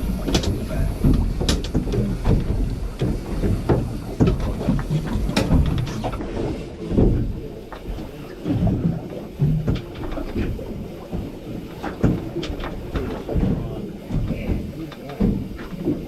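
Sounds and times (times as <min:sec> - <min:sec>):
knocks and thumps: 0:00.0 - 0:06.2
wind buffeting microphone: 0:00.0 - 0:15.6.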